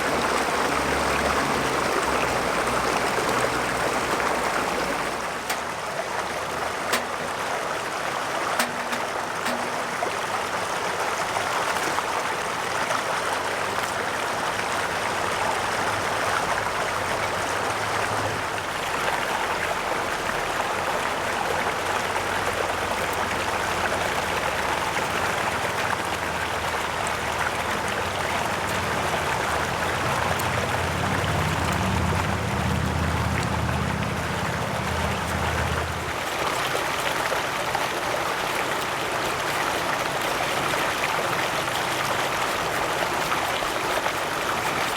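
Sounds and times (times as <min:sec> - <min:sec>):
mountain stream rushing: 0:00.0 - 0:44.9
low hum: 0:30.1 - 0:36.2.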